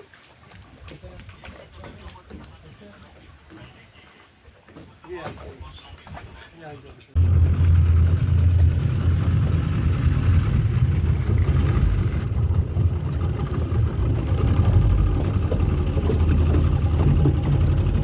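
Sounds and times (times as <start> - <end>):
engine low hum: 7.2 - 18.0.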